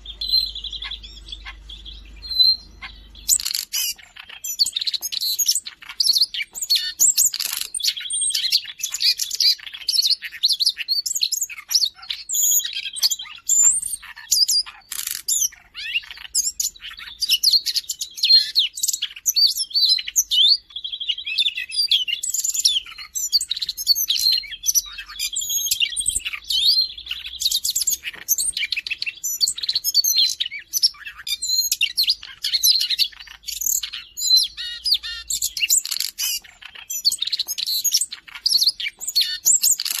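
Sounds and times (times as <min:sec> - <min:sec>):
bird warbling: 0:00.0 - 0:09.9
buzzy bird trill: 0:00.0 - 0:40.0.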